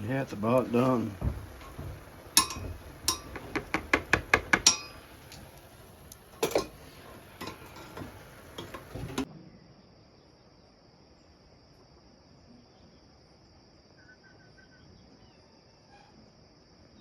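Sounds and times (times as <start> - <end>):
metal spoon knocking on pot: 0.5 - 5.6, 6.3 - 9.3.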